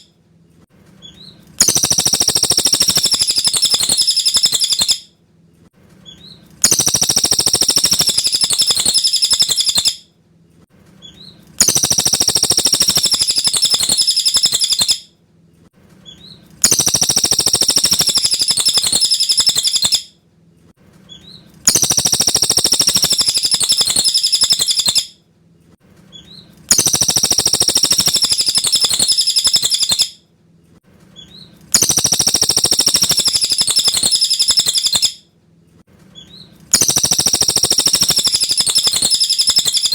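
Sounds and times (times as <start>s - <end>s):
bird singing high rapid phrases: 1.0s - 5.0s, 6.0s - 10.0s, 11.0s - 15.0s, 16.1s - 20.1s, 21.1s - 25.1s, 26.1s - 30.2s, 31.2s - 35.2s, 36.2s - 39.9s.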